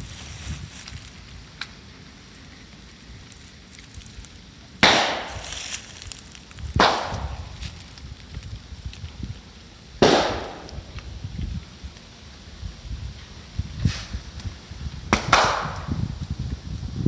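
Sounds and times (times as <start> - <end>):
bonfire crackling: 0.0 - 17.0
bamboo bursting with sharp bangs: 4.8 - 7.9, 10.0 - 11.0, 15.1 - 16.0.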